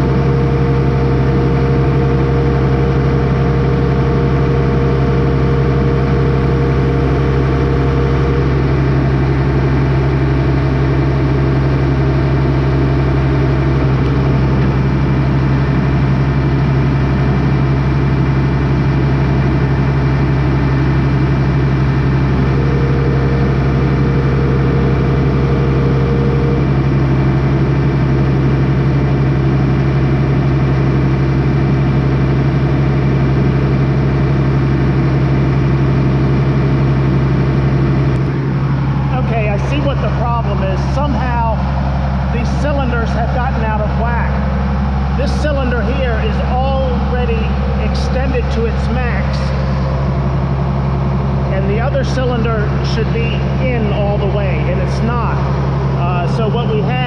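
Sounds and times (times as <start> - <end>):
higher tone: 0.0 - 29.0
vehicle engine idling: 0.0 - 57.0.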